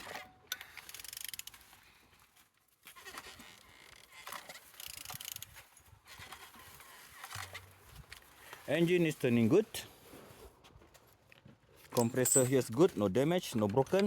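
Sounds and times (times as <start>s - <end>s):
engine turned by wrench clicking: 0.0s - 1.6s, 3.0s - 5.6s.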